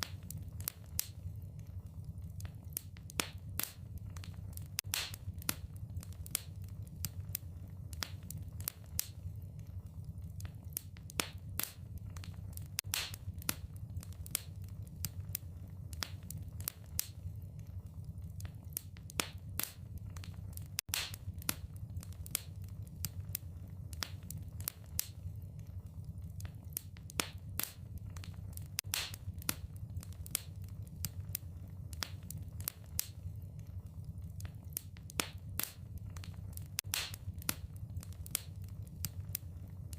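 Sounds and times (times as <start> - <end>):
fireplace fire crackling and popping: 0.0 - 39.9
low steady rumble: 0.0 - 39.9.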